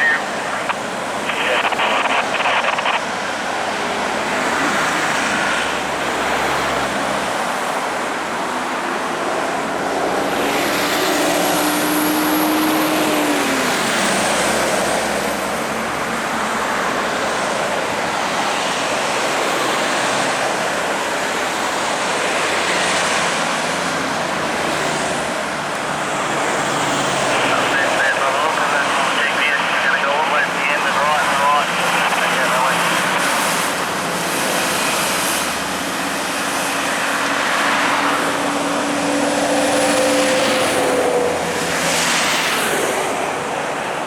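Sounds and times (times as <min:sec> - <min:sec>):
truck engine: 0:22.4 - 0:44.0.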